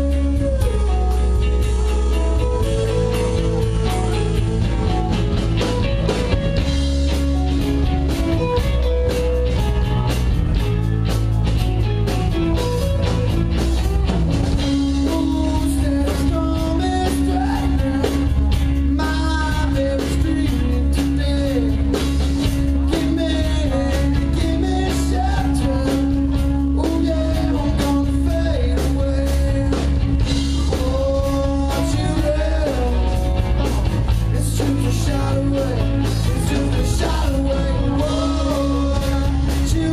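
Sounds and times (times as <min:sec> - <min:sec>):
rock band playing live: 0:00.0 - 0:39.9
singer: 0:14.6 - 0:39.9.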